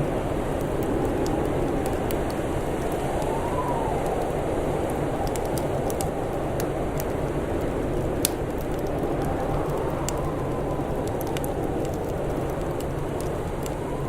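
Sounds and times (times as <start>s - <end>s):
low rush of wind: 0.0s - 14.0s
wood fire crackling and popping: 0.0s - 14.0s.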